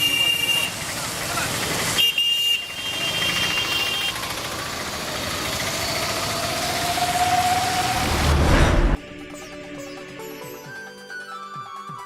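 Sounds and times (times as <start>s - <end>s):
vehicle engines running: 0.0s - 9.0s.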